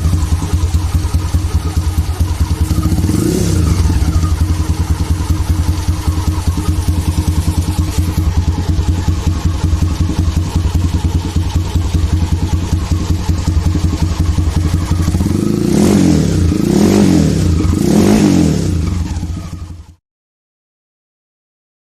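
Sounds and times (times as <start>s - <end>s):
motorcycle throttle blips: 0.0s - 19.9s
motorcycle engine idling: 0.0s - 20.0s.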